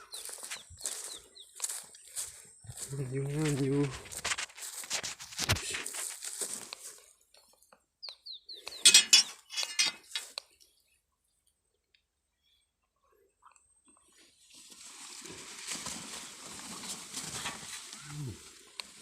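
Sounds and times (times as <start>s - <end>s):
bird chirps: 0.0s - 2.7s, 8.0s - 9.9s
leaves and twigs rustling: 0.0s - 7.3s, 14.4s - 19.0s.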